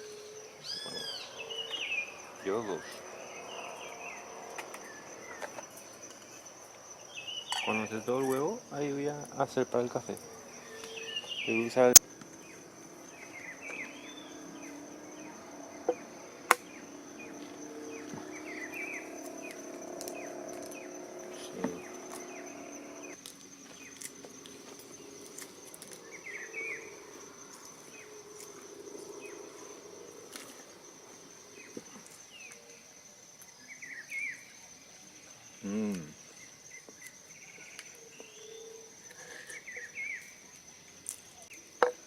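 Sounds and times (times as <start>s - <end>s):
insects trilling: 0.0s - 42.0s
bird chirps: 0.6s - 4.2s, 7.0s - 8.1s, 10.6s - 23.2s.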